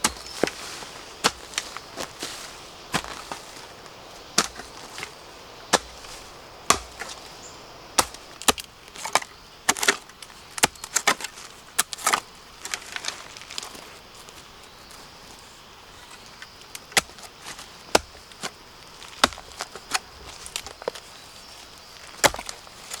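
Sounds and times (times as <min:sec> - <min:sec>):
blade chopping bamboo: 0:04.4 - 0:05.1, 0:05.7 - 0:07.2, 0:08.0 - 0:10.0, 0:19.1 - 0:20.0.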